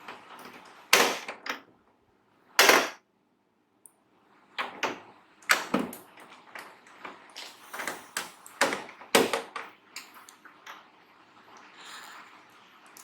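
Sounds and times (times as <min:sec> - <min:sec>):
hard parts clicking and knocking: 0:00.0 - 0:01.6, 0:02.6 - 0:03.0.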